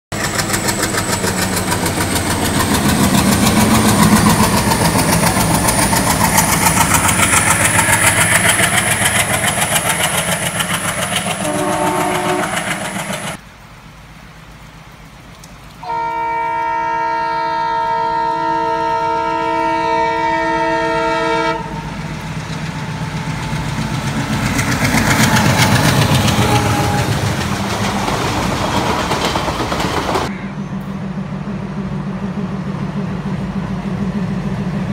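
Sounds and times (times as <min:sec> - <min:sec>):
passenger train rushing past: 0:00.1 - 0:13.4, 0:15.8 - 0:34.9
long multi-tone train horn: 0:11.2 - 0:13.4, 0:15.8 - 0:22.0, 0:25.2 - 0:27.5, 0:30.2 - 0:31.1
train horn toot: 0:11.4 - 0:12.9, 0:15.8 - 0:22.0, 0:25.3 - 0:27.4, 0:30.3 - 0:30.9.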